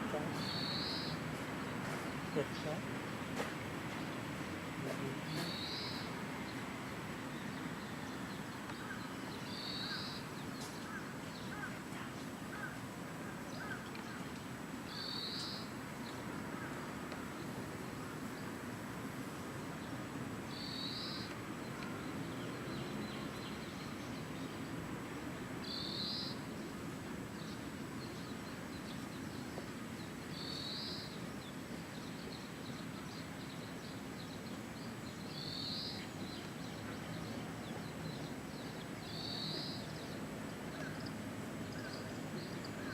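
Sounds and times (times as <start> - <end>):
small bird call: 0.1 - 1.2, 4.9 - 6.2, 7.5 - 14.3, 14.9 - 15.8, 25.6 - 26.5, 32.0 - 42.9
faint bird chirps: 0.4 - 1.2, 5.2 - 6.1, 32.0 - 42.9.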